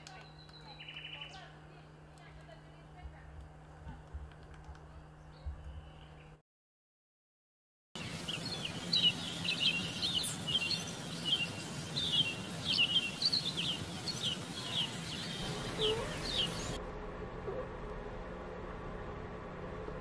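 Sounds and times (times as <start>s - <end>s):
small birds chirping: 0.0s - 1.6s, 8.0s - 16.8s
steady background hiss: 8.0s - 16.8s.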